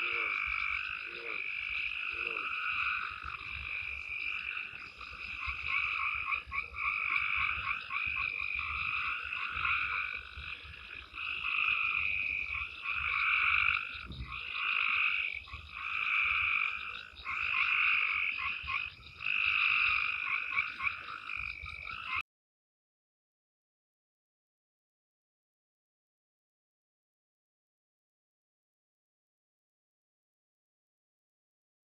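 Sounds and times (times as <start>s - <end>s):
frogs calling in pulsed trills: 0.0s - 22.2s.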